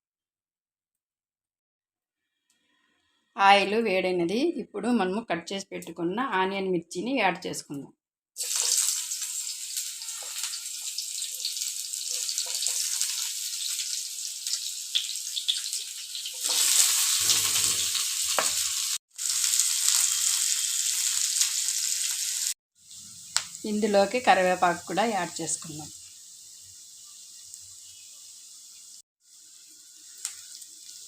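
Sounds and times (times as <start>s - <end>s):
onions sizzling in hot oil: 8.4s - 31.0s.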